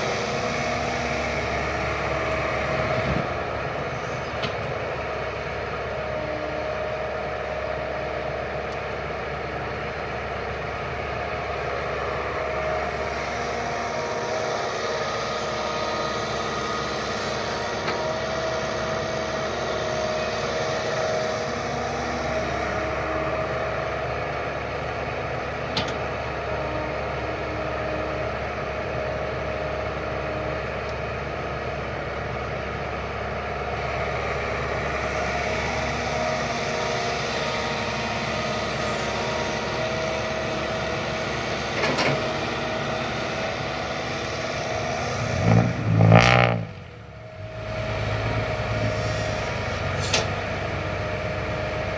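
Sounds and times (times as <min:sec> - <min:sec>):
excavator diesel engine running: 0:00.0 - 0:51.9
brief sharp click: 0:50.0 - 0:50.3.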